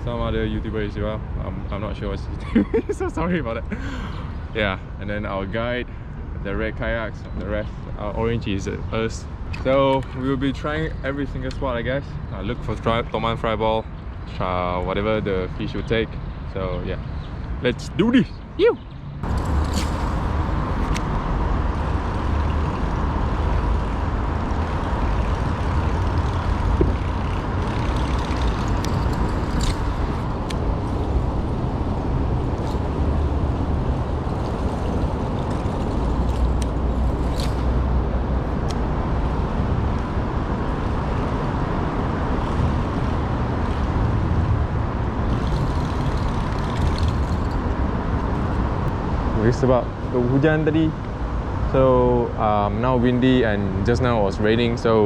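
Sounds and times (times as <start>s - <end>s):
wind buffeting microphone: 19.2s - 50.1s.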